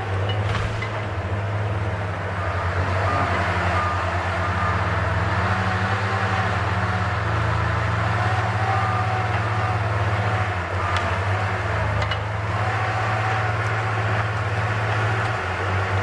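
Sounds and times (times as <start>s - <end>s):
diesel engine running: 0.0s - 16.0s
hydraulic whine: 2.4s - 14.6s.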